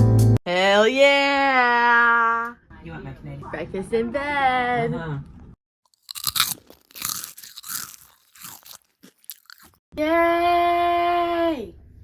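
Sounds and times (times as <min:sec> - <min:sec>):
person chewing crunchy food: 0:05.9 - 0:09.8.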